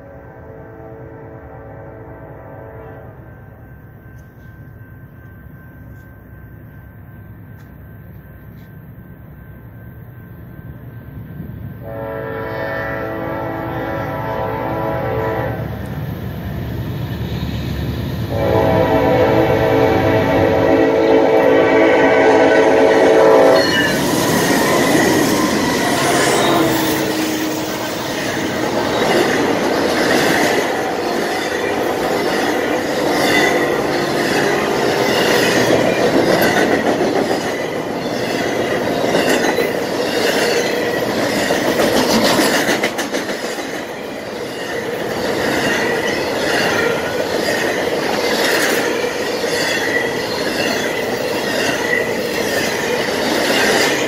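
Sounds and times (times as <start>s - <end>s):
diesel locomotive: 0.0s - 54.0s
high wheel squeal: 23.4s - 29.4s
train cars clacking over rail joints: 23.8s - 54.0s.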